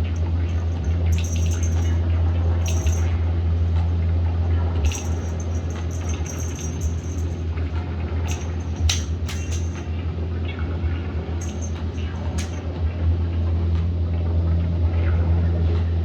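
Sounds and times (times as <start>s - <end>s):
cat toy jingling: 0.0s - 3.2s, 4.8s - 9.9s, 11.1s - 12.7s
steady low hum: 0.0s - 4.0s, 4.8s - 10.2s, 10.9s - 12.8s.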